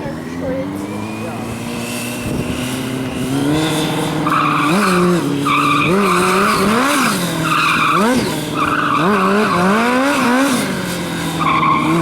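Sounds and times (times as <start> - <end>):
engine revving: 0.0 - 12.0
tyres squealing: 2.9 - 12.0.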